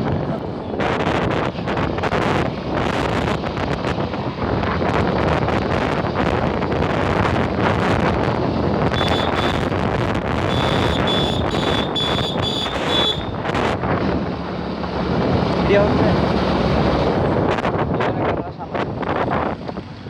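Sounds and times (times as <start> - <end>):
bike ride rumble: 0.0 - 20.0
wind buffeting microphone: 0.0 - 20.0
short high-pitched beeps: 9.0 - 9.6, 10.5 - 13.4.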